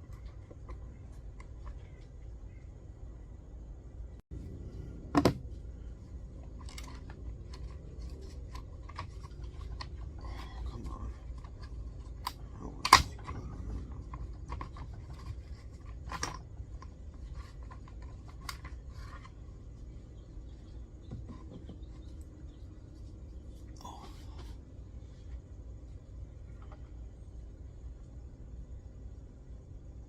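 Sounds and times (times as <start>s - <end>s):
small clicks and scrapes: 0.0s - 2.3s, 6.4s - 20.0s.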